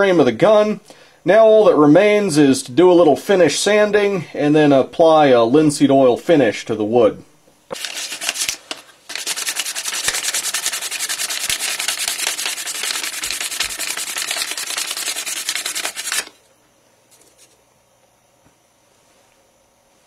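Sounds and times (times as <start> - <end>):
sandpaper rubbing on wood: 7.8 - 16.3.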